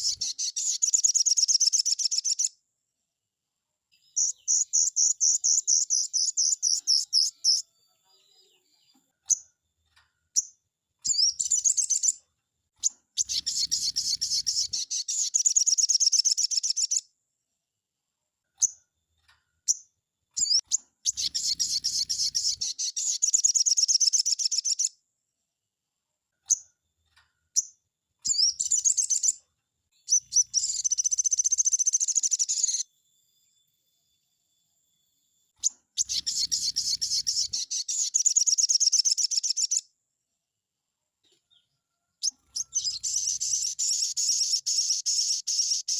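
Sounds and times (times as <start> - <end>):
bird singing rapid chirps: 0.0 - 2.6, 4.0 - 8.6, 10.4 - 12.2, 12.8 - 17.0, 20.4 - 24.9, 27.6 - 29.4, 30.0 - 32.9, 35.6 - 39.8, 42.2 - 45.9.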